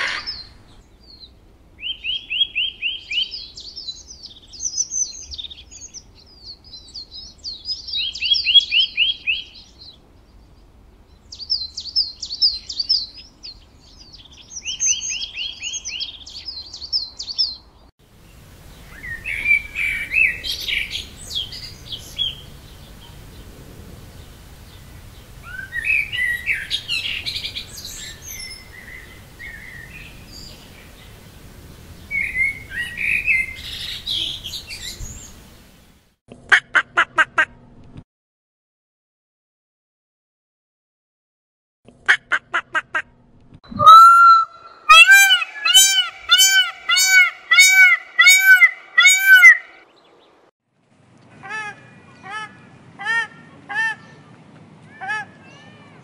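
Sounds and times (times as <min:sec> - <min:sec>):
bird trills and chirps: 0:00.0 - 0:09.9, 0:43.7 - 0:49.9
busy bird chirping: 0:00.0 - 0:17.9, 0:18.7 - 0:23.5, 0:24.2 - 0:31.2, 0:31.9 - 0:35.5, 0:43.7 - 0:50.3.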